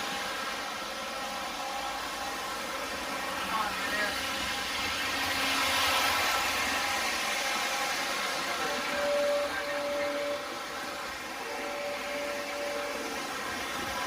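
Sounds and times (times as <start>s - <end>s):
model train wheels on track: 0.0s - 14.0s
steady single tone: 8.7s - 14.0s.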